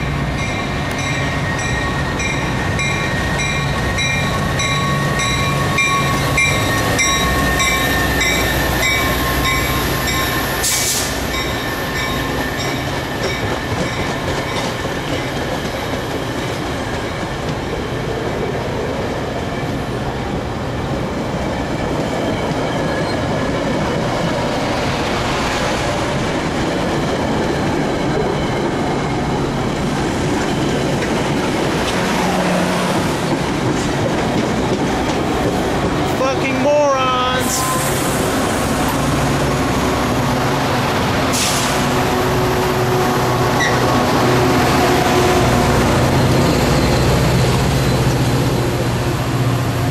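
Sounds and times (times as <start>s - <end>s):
train wheels clacking on rails: 0.0s - 17.9s, 26.1s - 36.1s
diesel locomotive rumble: 19.7s - 49.9s.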